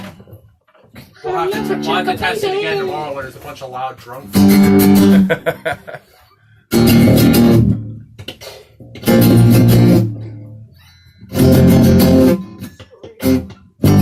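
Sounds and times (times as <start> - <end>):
guitar chords strummed: 1.3 - 2.3, 4.3 - 5.4, 6.7 - 14.0.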